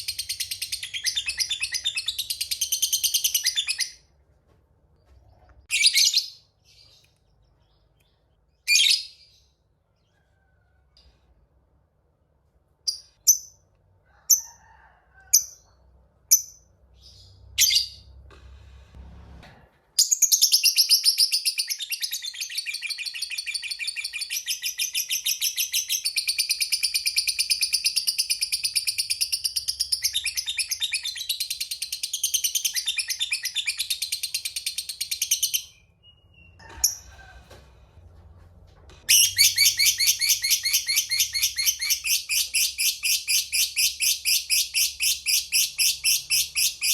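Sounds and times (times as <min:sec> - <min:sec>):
bird chirps: 0:20.0 - 0:36.8, 0:39.1 - 0:46.9.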